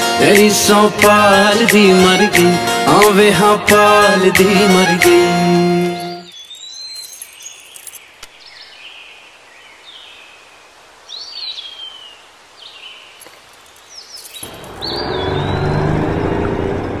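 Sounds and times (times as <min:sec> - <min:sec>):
music: 0:00.0 - 0:06.3
outdoor hiss: 0:00.0 - 0:16.0
birds chirping: 0:03.8 - 0:16.6.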